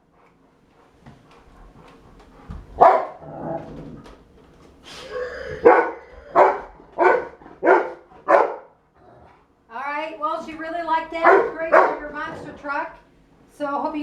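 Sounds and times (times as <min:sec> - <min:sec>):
dog barking: 0:02.8 - 0:03.2, 0:05.6 - 0:08.8, 0:11.2 - 0:12.5.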